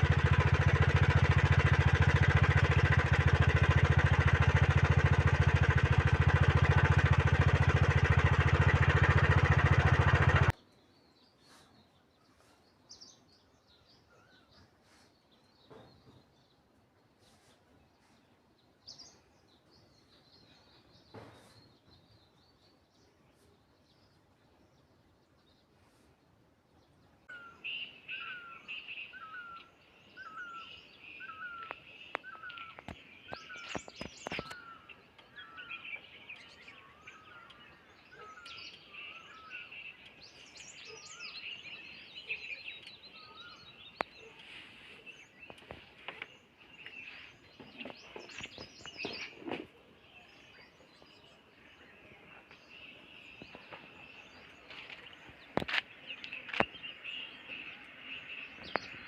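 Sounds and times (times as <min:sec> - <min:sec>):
high-pitched bird chorus: 0:00.0 - 0:59.0
scattered bird chirps: 0:20.8 - 0:22.8, 0:27.2 - 0:59.0.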